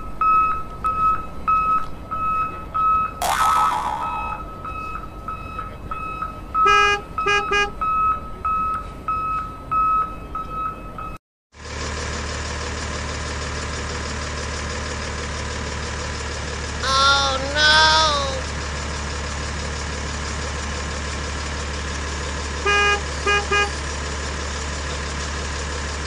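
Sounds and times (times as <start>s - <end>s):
toy horn toots: 3.2s - 4.4s
short wavering tones: 3.2s - 4.7s
engine-like drone: 3.2s - 6.6s.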